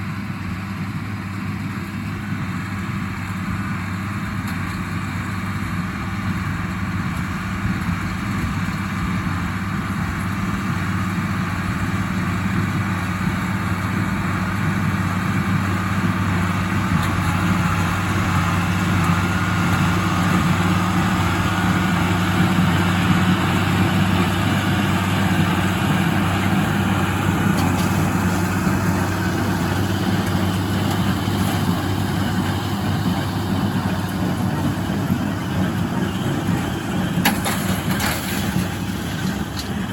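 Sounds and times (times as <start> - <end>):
tractor diesel engine drone: 0.0 - 39.9
baler clatter: 16.9 - 39.9.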